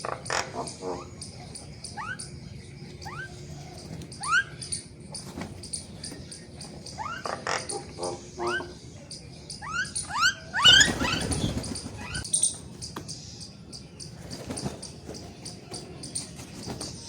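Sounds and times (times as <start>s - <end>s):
sparrows chirping: 0.0s - 17.0s
loud harsh bird call: 6.9s - 12.4s.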